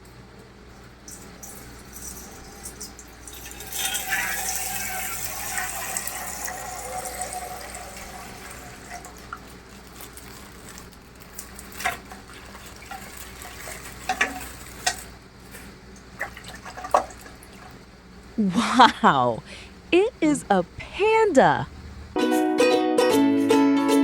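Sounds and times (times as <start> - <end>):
water running and splashing: 1.1 - 17.8
plastic clicks and crinkles: 9.2 - 15.7.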